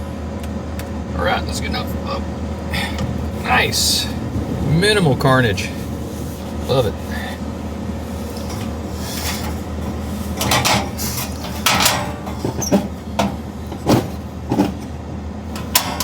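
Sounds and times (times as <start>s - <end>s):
steady low hum: 0.0s - 16.0s
pots and pans clattering: 8.4s - 15.0s, 15.6s - 16.0s.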